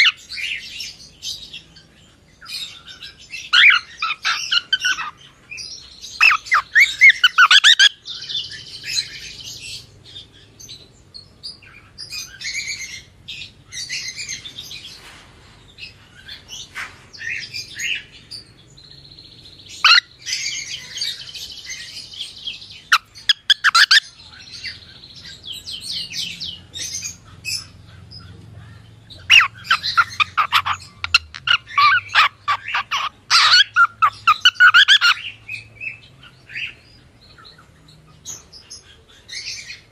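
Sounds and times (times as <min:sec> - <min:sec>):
cockatiel chirping and whistling: 0:06.2 - 0:07.9.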